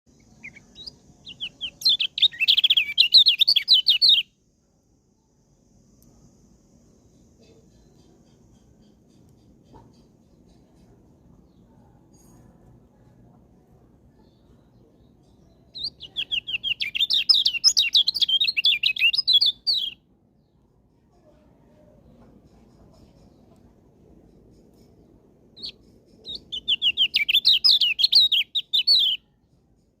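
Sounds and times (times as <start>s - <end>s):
bird chirping and warbling: 0.1s - 4.3s, 15.4s - 20.0s, 25.6s - 29.3s
songbird chirping and twittering: 0.1s - 4.4s, 5.2s - 30.0s.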